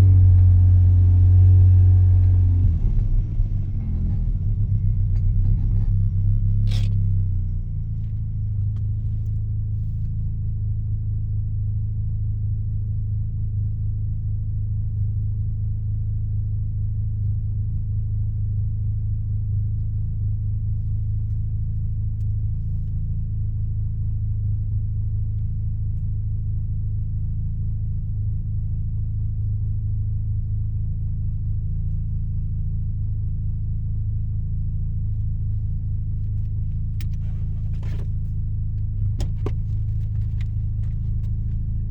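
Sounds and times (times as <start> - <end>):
rotary engine droning: 0.0 - 10.0, 35.1 - 41.9.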